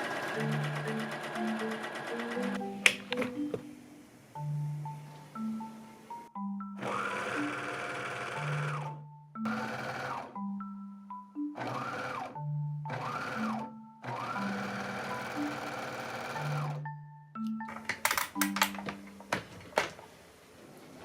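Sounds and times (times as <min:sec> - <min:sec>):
sewing machine stitching: 0:00.0 - 0:02.6, 0:06.8 - 0:08.9, 0:09.5 - 0:10.3, 0:11.6 - 0:12.3, 0:12.9 - 0:16.8
light background music: 0:00.0 - 0:20.3.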